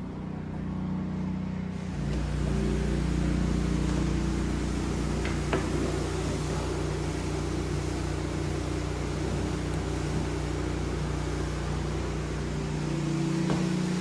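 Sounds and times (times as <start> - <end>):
carpet cleaner motor humming: 0.0 - 14.0
pressure washer hiss: 1.8 - 14.0.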